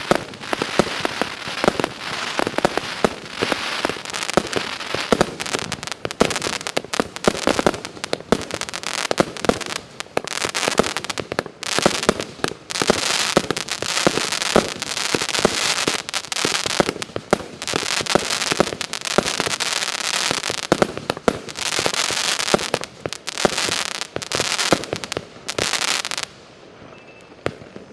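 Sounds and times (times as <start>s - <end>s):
firework shots crackling: 0.0s - 27.9s.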